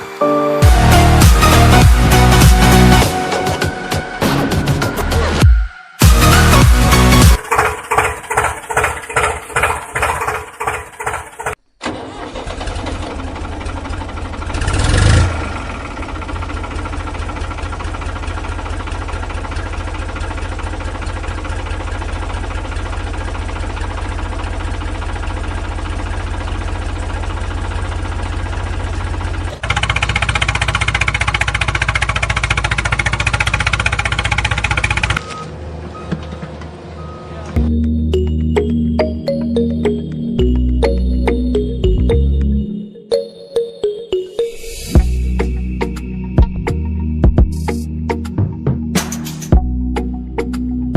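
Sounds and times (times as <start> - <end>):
electronic music with heavy beat: 0.6 - 7.4, 37.6 - 50.7
engine running: 6.0 - 42.7.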